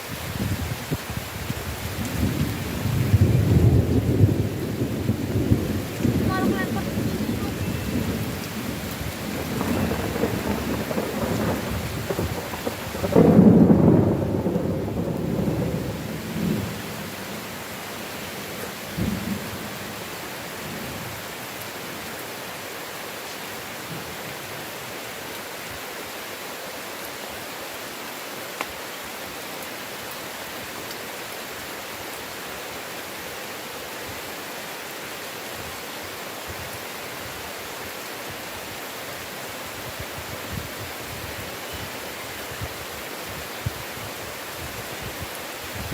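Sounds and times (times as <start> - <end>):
heavy rain falling: 0.0 - 45.9
thunder rolling: 2.0 - 17.3.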